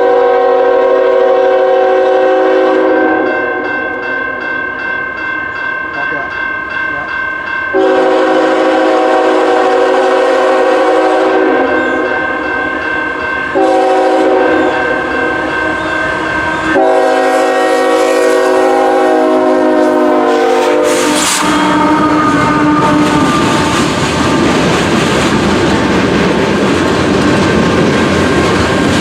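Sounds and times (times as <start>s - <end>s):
locomotive air horn blasts: 0.0s - 3.7s, 7.7s - 12.4s, 13.5s - 15.8s, 16.5s - 24.0s.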